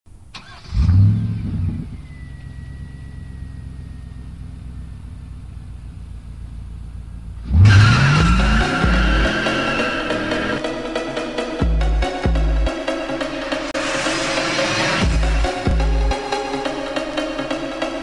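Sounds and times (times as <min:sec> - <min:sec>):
car engine revving and idling: 0:00.1 - 0:10.9, 0:14.4 - 0:18.0
music: 0:07.7 - 0:18.0.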